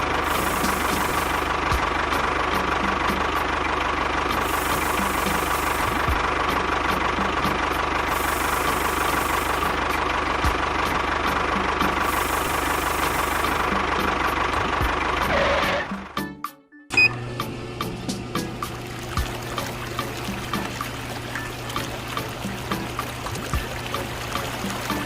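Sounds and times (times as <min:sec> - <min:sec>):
small tractor engine idling: 0:00.0 - 0:16.2, 0:18.6 - 0:25.0.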